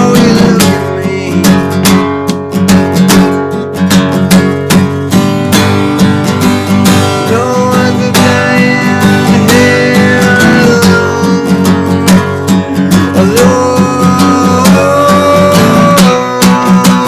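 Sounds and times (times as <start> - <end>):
acoustic guitar strumming: 0.0 - 17.0
sliding held melody line: 6.0 - 17.0.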